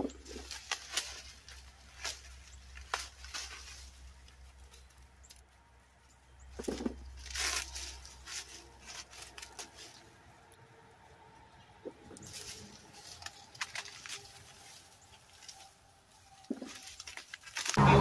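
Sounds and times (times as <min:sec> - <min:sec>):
dry corn stalks rustling: 0:00.0 - 0:10.6, 0:11.8 - 0:18.0
sharp snaps of stalks: 0:00.4 - 0:03.9.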